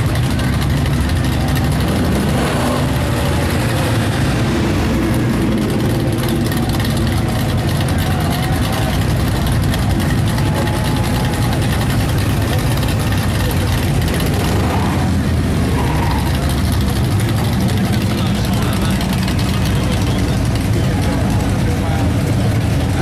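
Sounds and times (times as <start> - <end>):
car engines running slowly: 0.0 - 23.0.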